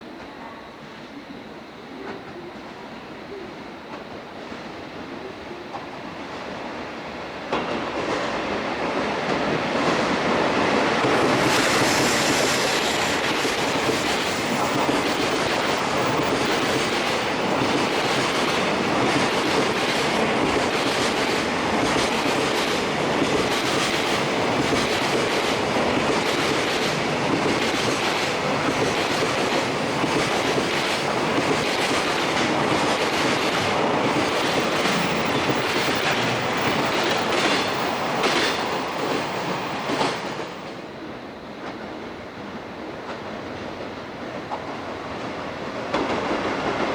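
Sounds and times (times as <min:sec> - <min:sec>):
freight train wheels clattering: 0:07.5 - 0:40.8.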